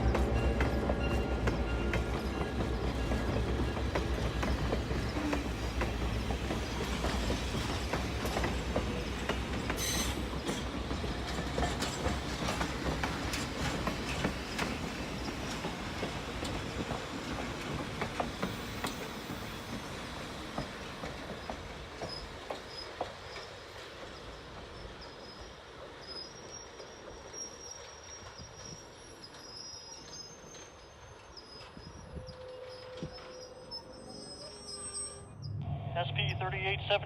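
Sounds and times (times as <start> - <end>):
train wheels clicking over rail joints: 0.0 - 33.3
high-pitched wheel squeal: 9.8 - 10.2, 27.4 - 35.9.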